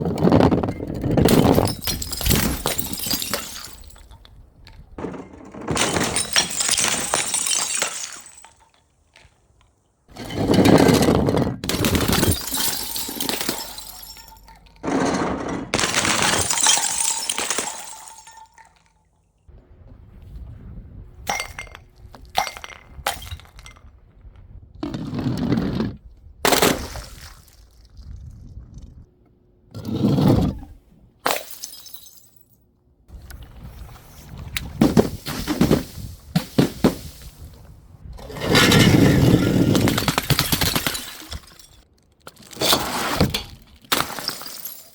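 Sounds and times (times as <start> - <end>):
glass bottles smashing: 1.2 - 4.2, 5.0 - 8.8, 10.1 - 19.0, 21.3 - 23.9, 31.3 - 32.5, 34.8 - 37.5, 38.4 - 44.9
glass knocks and clinks: 21.3 - 23.8.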